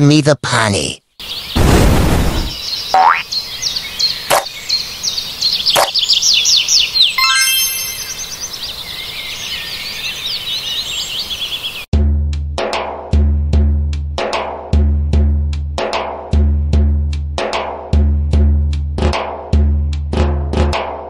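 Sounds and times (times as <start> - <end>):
small birds chirping: 1.0 - 11.9
sharp clicks: 4.3 - 4.5
drum-led music: 11.9 - 21.0.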